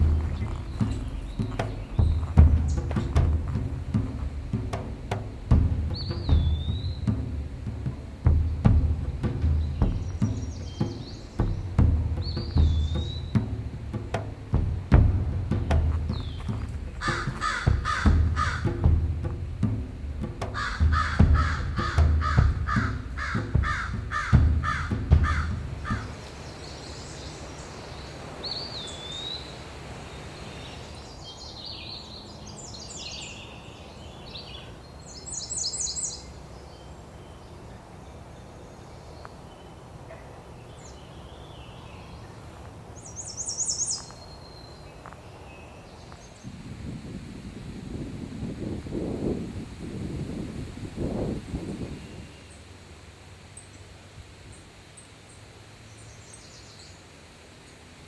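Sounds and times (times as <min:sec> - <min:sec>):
low rumble: 0:00.0 - 0:26.4
songbirds chirping and trilling: 0:00.0 - 0:47.2, 0:49.1 - 0:58.0
crow cawing: 0:17.0 - 0:18.8, 0:20.5 - 0:26.3.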